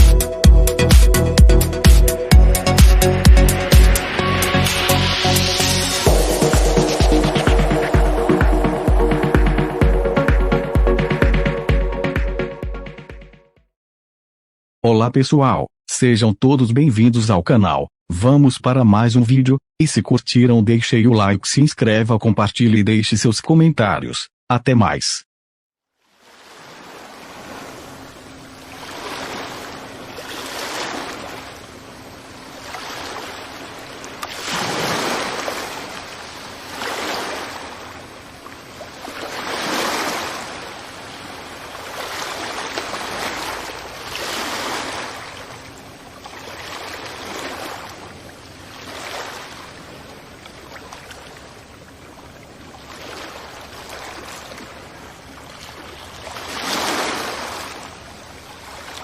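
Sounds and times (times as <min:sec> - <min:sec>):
ocean waves breaking on beach: 0:03.6 - 0:09.8, 0:26.0 - 0:59.0.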